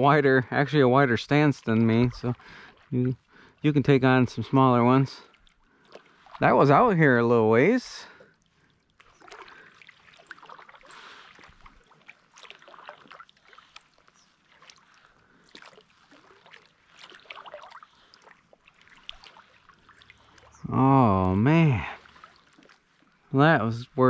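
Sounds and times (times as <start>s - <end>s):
faint trickling water: 0.0s - 24.0s
paddle splashing in water: 1.6s - 3.7s, 5.2s - 6.8s, 8.2s - 23.3s.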